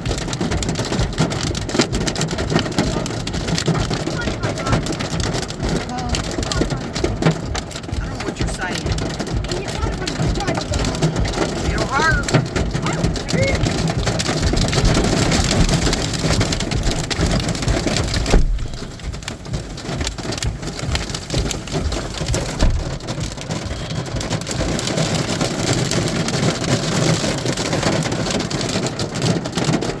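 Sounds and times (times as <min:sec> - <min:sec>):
hail and heavy rain pelting: 0:00.0 - 0:30.0.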